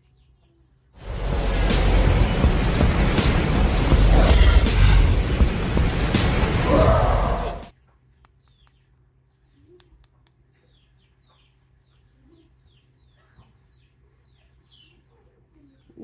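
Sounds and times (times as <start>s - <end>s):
loud music: 1.0s - 7.7s.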